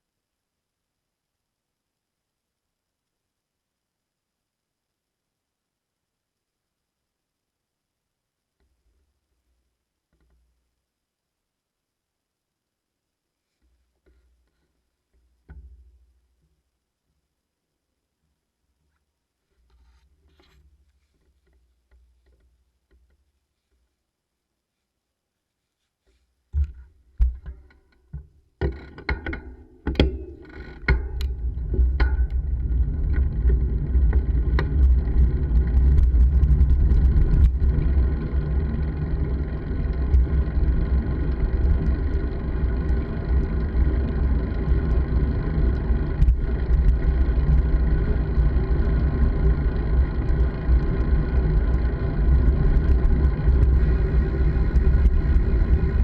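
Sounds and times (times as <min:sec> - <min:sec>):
wind rumble: 0:31.2 - 0:56.0.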